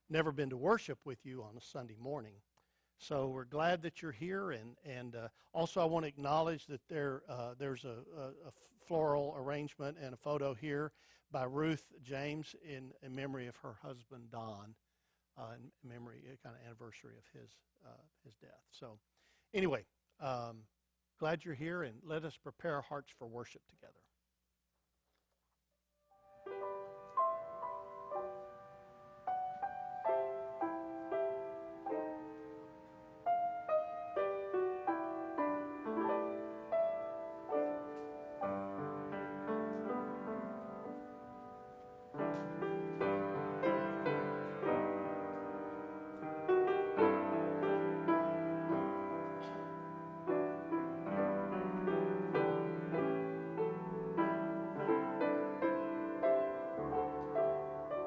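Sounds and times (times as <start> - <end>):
slow gentle piano piece: 26.2 - 58.0.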